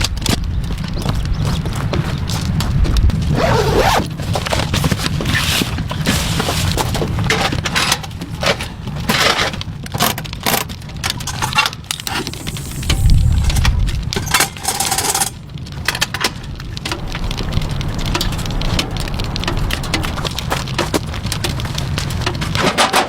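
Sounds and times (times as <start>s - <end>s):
steady low rumble: 11.9s - 15.8s.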